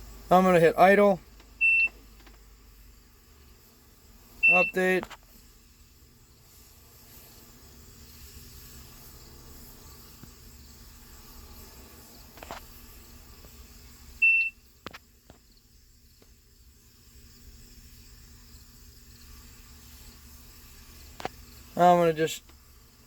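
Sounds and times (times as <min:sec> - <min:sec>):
distant engine low hum: 0:00.0 - 0:23.0
short high beep: 0:01.6 - 0:01.9, 0:04.4 - 0:04.8, 0:14.2 - 0:14.6.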